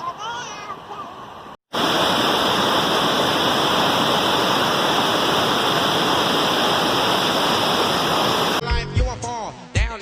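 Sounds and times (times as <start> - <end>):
waterfall rushing: 1.7 - 8.6.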